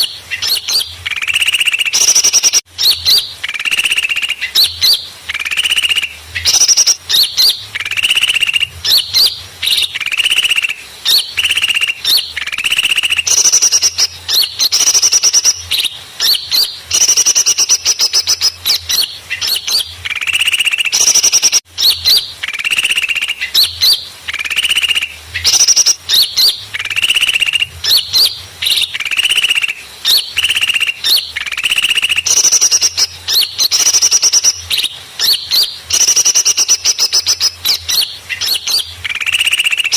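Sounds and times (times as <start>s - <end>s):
small songbirds chirping and trilling: 0.0s - 39.9s.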